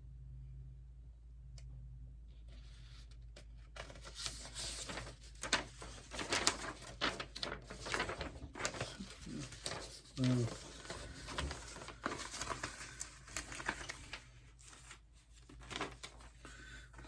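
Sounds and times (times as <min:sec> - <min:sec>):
packaging crinkling and rustling: 0:03.6 - 0:17.0.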